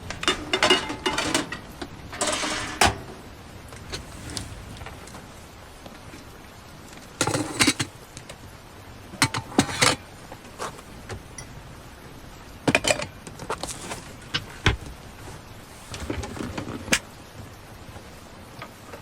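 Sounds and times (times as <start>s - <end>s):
objects rattling and knocking: 0.0s - 5.3s, 7.2s - 8.4s, 12.6s - 18.1s
rain hissing: 0.0s - 19.0s.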